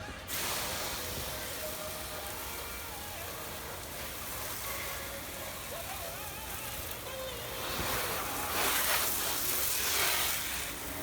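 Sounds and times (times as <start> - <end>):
faint radio voices: 4.4 - 9.3.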